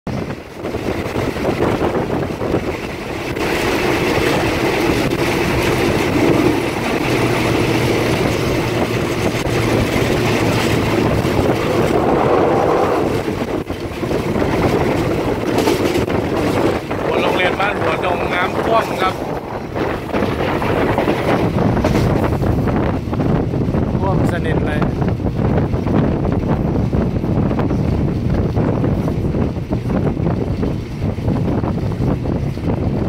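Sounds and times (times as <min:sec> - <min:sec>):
train running on rails: 0:00.1 - 0:33.0
low hum: 0:03.2 - 0:15.4.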